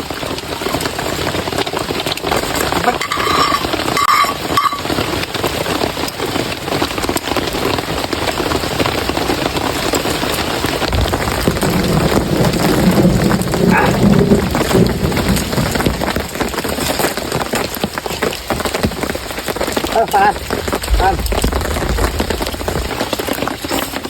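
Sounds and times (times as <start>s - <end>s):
heavy rain pouring: 0.0s - 24.0s
low rumbling: 10.9s - 16.2s, 20.2s - 24.0s.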